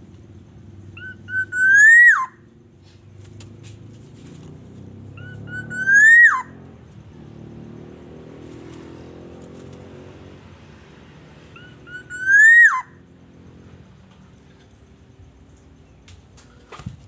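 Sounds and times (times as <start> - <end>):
bird whistled call: 1.0 - 2.4, 5.2 - 6.6, 11.6 - 13.0.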